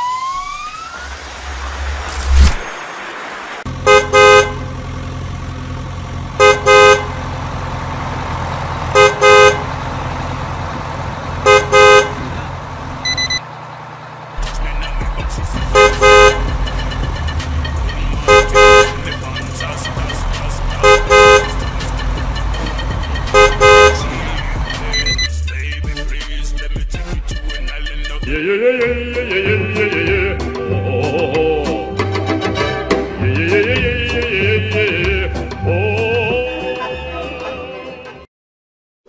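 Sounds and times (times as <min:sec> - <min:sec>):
low engine rumble: 0:01.1 - 0:31.6
truck horn honking: 0:03.7 - 0:25.3
short high beep: 0:13.0 - 0:13.4, 0:24.8 - 0:25.3.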